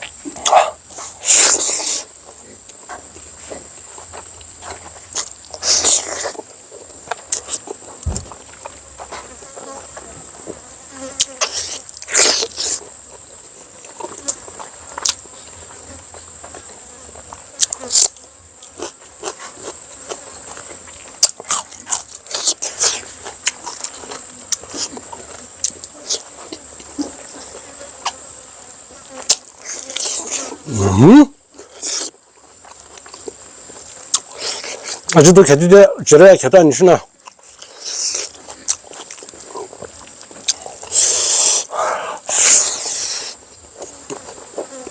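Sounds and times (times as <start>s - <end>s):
chewing with mouth clicks: 0.0s - 9.8s, 11.1s - 13.2s, 13.8s - 15.3s, 17.6s - 28.2s, 29.2s - 30.5s, 31.6s - 35.2s, 37.2s - 41.6s
insects droning: 0.0s - 44.9s
person eating and slurping: 5.1s - 6.4s, 31.7s - 32.1s, 37.5s - 39.3s, 40.5s - 43.9s
rising vocal hum: 30.6s - 31.4s.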